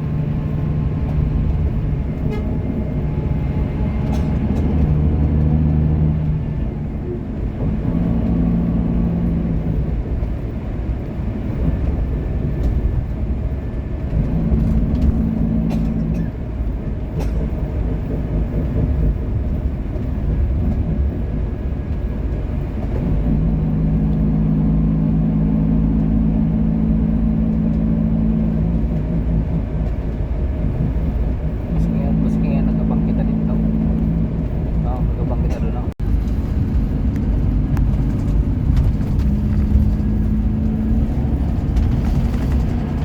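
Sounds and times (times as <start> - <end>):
bus engine running: 0.0 - 43.0.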